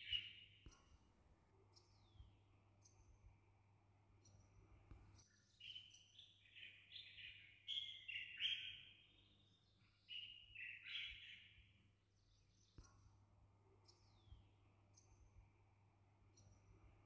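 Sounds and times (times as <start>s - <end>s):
faint low hum: 0.0s - 5.7s, 11.5s - 17.0s
bird chirping: 0.0s - 17.0s.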